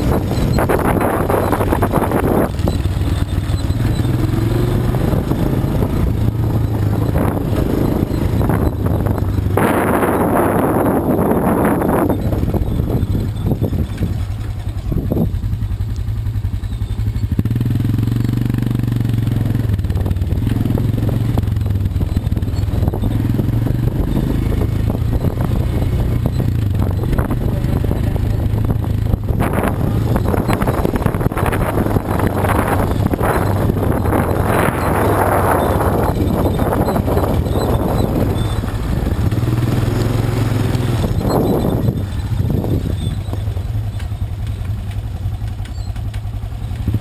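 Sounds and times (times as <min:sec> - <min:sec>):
quad bike engine droning: 0:00.0 - 0:47.0.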